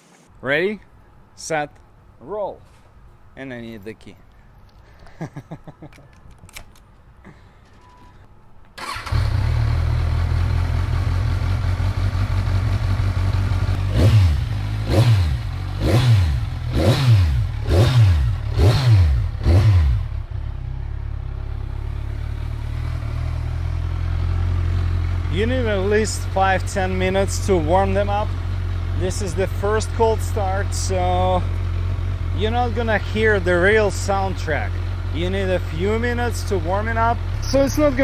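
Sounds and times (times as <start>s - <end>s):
motorcycle engine idling: 8.8s - 38.0s
motorcycle engine revving: 8.8s - 38.0s
motorcycle engine starting: 8.8s - 38.0s.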